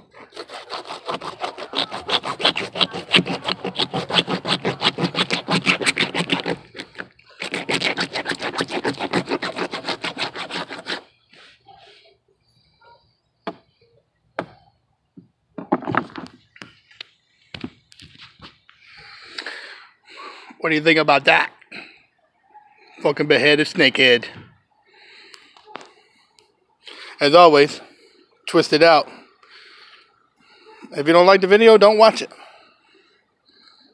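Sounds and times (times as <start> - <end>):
blade sawing through fish: 0.0 - 11.1.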